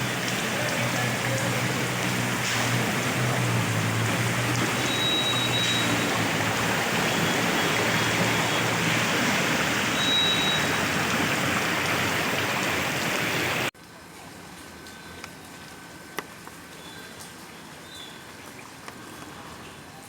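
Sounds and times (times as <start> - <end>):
water rushing: 0.0 - 13.7.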